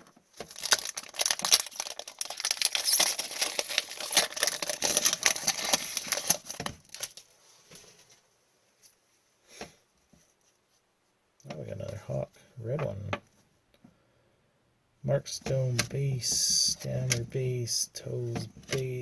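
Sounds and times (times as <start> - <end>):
wrapper crinkling: 0.3 - 7.3.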